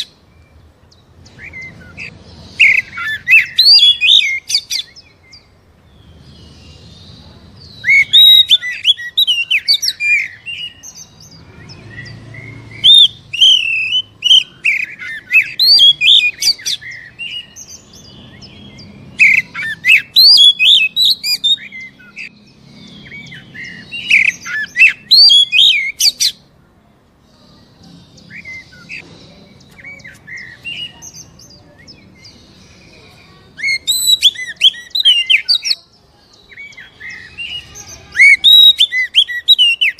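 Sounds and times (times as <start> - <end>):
songbird whistling loud phrases: 7.8 - 10.8, 33.6 - 35.8, 36.5 - 39.9.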